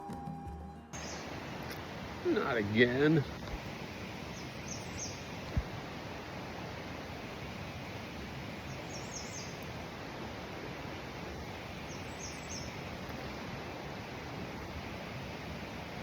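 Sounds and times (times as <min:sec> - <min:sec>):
bird calling high-pitched notes: 0:00.0 - 0:01.3
steady background hiss: 0:00.9 - 0:16.0.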